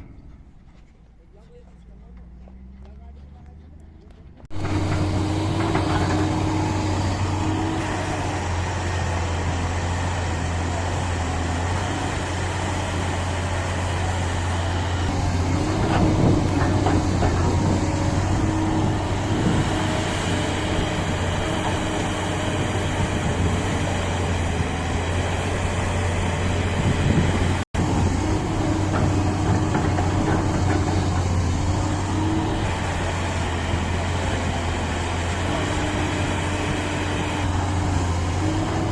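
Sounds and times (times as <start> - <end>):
heavy diesel engine running: 0.0 - 38.9
clatter: 15.3 - 18.3, 28.8 - 31.8.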